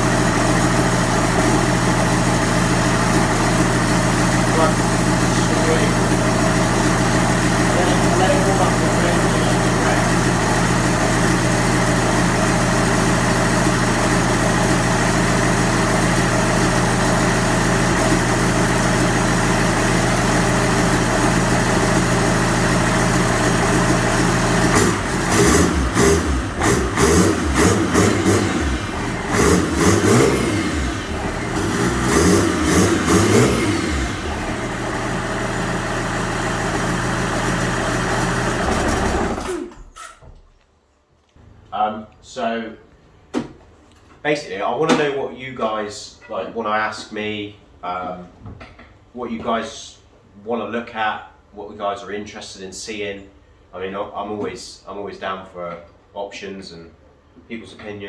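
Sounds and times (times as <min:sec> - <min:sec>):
diesel engine idling and revving: 0:00.0 - 0:39.8.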